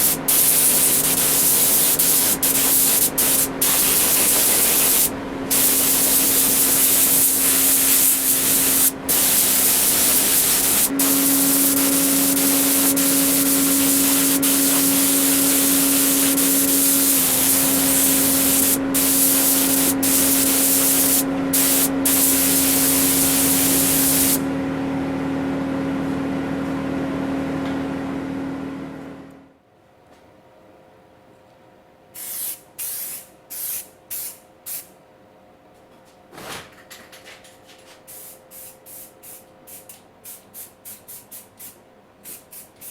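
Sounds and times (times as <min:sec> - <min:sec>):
compressed air hissing from spray tool: 0:00.0 - 0:24.4, 0:32.2 - 0:34.9, 0:38.1 - 0:42.9
steady hum: 0:00.0 - 0:25.9.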